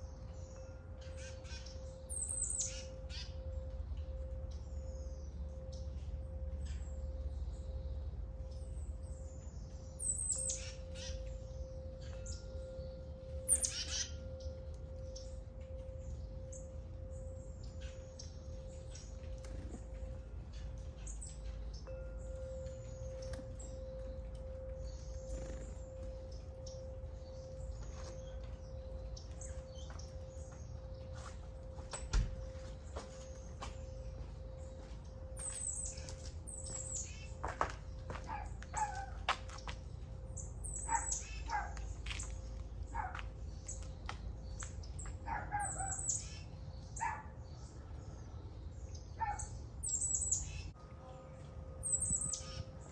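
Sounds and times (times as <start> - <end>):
birds chirping and whistling: 0.0 - 37.6, 40.4 - 47.7, 48.7 - 50.8, 51.8 - 52.9
faint steady hum: 0.0 - 40.7.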